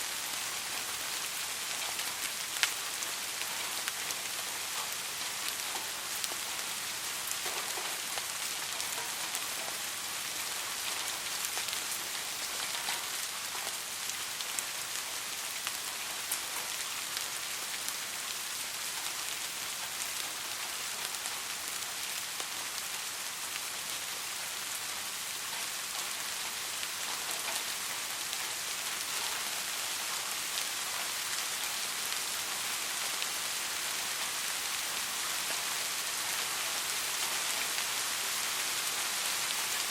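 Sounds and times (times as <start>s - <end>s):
soft rain falling: 0.0s - 39.9s
raindrop ticks: 12.5s - 14.2s.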